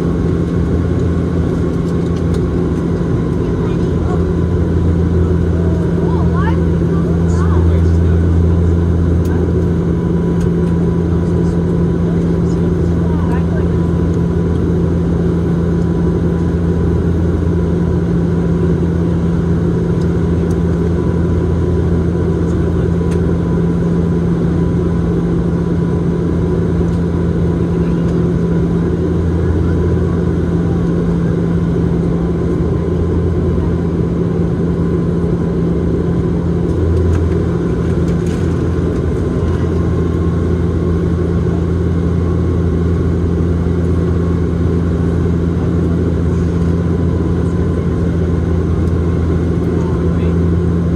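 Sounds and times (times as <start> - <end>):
propeller and engine drone: 0.0 - 50.9.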